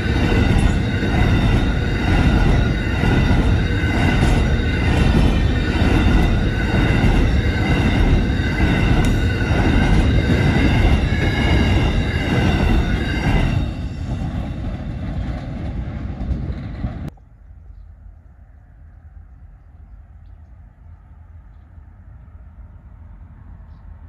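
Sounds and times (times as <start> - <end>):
high-pitched wheel squeal: 0.0 - 15.0
train wagons rumbling past: 0.0 - 24.0.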